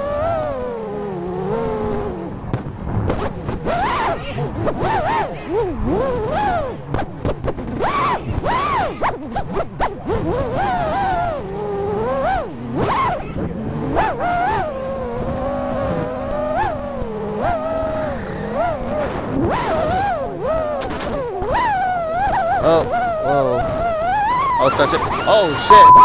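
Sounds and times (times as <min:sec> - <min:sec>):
quadcopter motors whining: 0:19.7 - 0:26.0.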